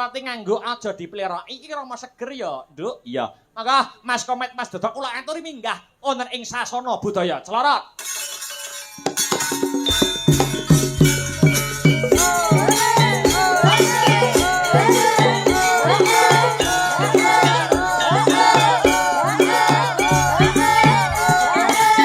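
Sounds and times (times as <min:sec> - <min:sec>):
gamelan ensemble playing: 0:08.0 - 0:22.0.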